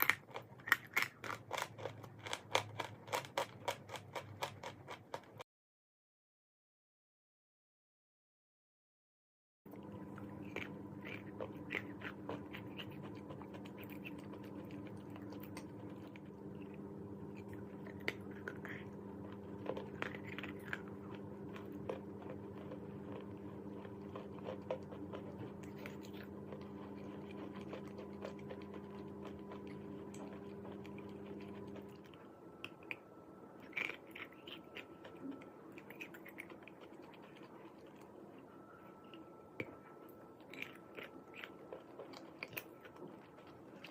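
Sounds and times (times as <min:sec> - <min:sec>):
chalk being chewed: 0:00.0 - 0:05.4, 0:09.8 - 0:33.0, 0:33.6 - 0:43.9
steady hum: 0:09.7 - 0:43.9.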